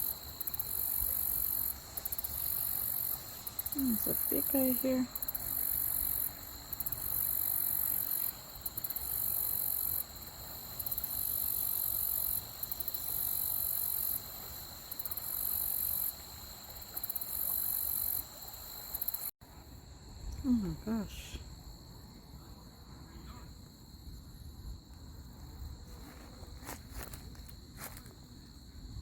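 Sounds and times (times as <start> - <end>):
thin high insect tones: 0.0 - 19.3
insects trilling high-pitched: 0.0 - 23.7.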